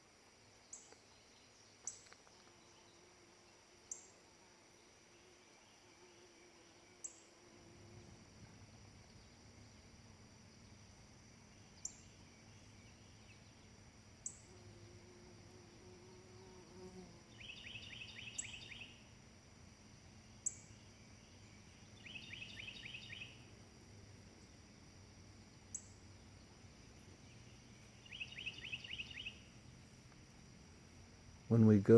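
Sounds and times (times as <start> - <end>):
high insect-like hiss: 0.0 - 31.9
bird trilling chirps: 22.0 - 23.4, 28.0 - 29.4.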